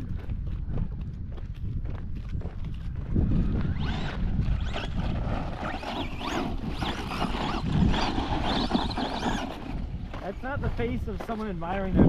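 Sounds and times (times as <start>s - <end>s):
wind buffeting microphone: 0.0s - 12.0s
high rising and falling whines: 3.2s - 10.4s.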